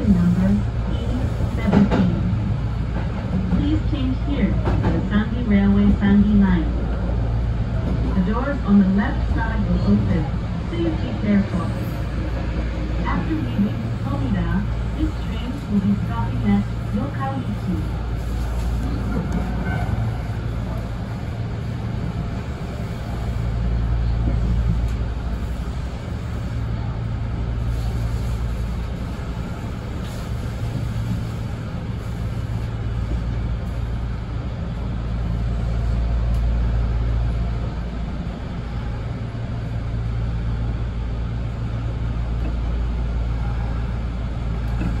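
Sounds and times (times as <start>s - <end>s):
train rumbling on rails: 0.0s - 45.0s.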